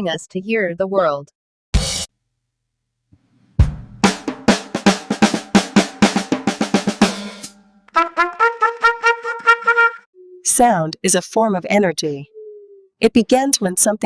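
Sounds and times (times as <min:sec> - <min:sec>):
fast drum strikes: 0:03.6 - 0:08.8
short repeated brass notes: 0:07.9 - 0:10.1.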